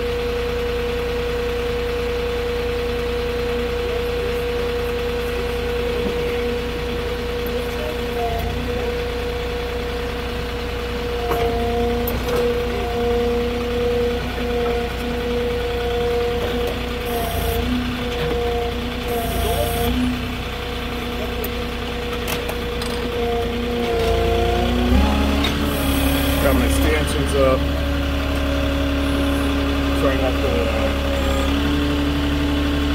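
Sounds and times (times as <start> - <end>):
forklift engine whining: 0.0 - 32.9.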